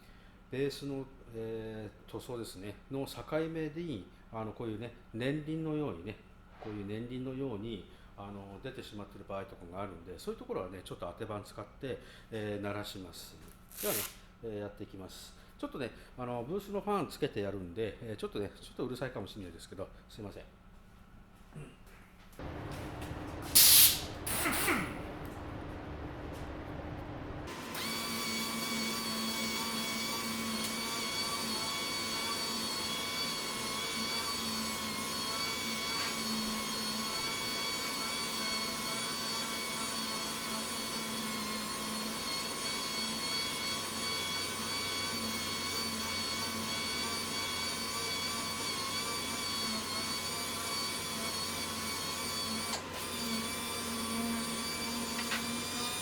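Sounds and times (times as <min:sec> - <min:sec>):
spray booth fan humming: 0:22.4 - 0:39.7
sander whining: 0:22.4 - 0:56.0.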